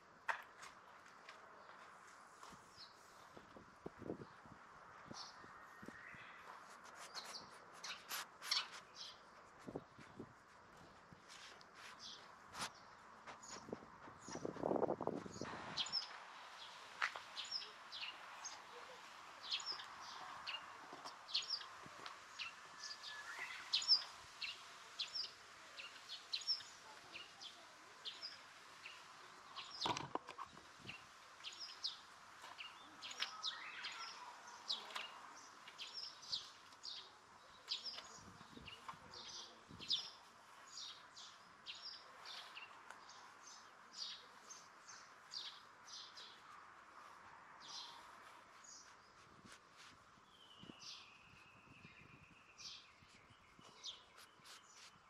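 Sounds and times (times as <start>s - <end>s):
small birds chirping: 1.4s - 55.0s
fur brushing across microphone: 6.6s - 9.0s, 11.0s - 12.8s, 46.9s - 50.2s, 54.2s - 55.0s.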